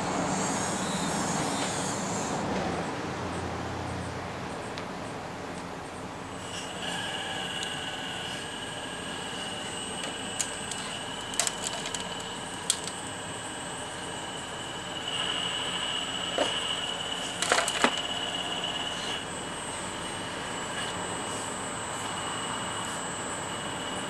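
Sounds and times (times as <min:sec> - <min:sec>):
toy excavator motor whine: 0:06.3 - 0:19.9
clicks and knocks of machine parts: 0:10.0 - 0:13.1, 0:17.4 - 0:18.1.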